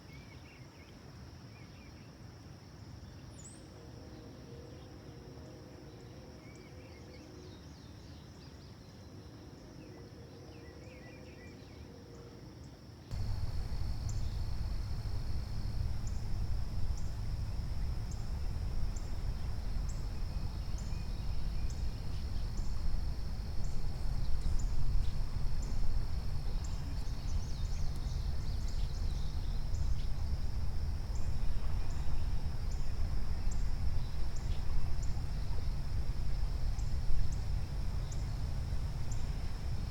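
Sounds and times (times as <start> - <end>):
faint bird chirps: 13.1 - 39.9
insect drone: 13.1 - 39.9
loud low rumble: 13.1 - 39.9.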